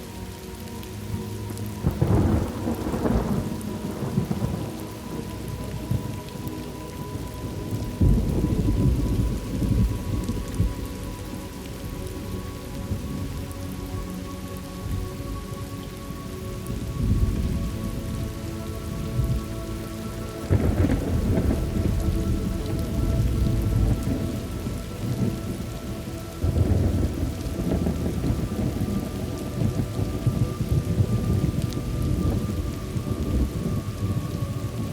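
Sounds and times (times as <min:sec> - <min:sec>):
steady rain: 0:00.0 - 0:34.9
rolling thunder: 0:01.8 - 0:06.2, 0:07.1 - 0:10.9, 0:20.4 - 0:34.9.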